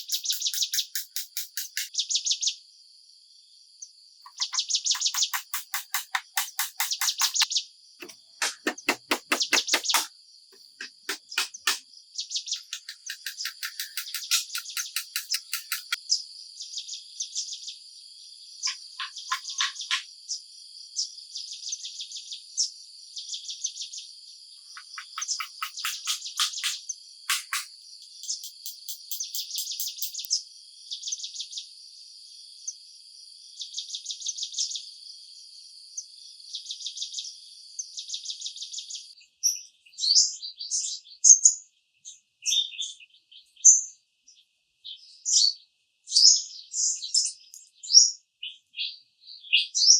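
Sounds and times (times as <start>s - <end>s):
insect pulsing trills: 0.0s - 1.9s, 12.6s - 16.0s, 24.8s - 30.3s
bird chirps: 0.0s - 2.2s, 4.3s - 16.0s, 18.6s - 20.1s, 24.6s - 30.4s
insects droning: 12.5s - 16.0s, 24.6s - 30.3s.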